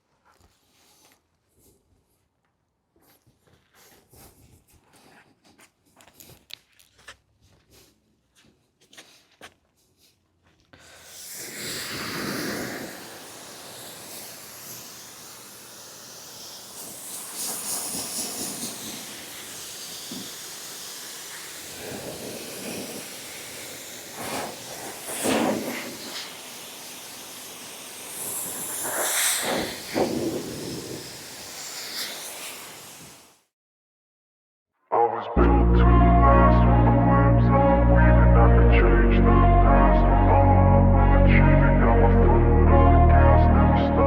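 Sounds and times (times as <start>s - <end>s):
spray hissing: 10.8s - 33.4s.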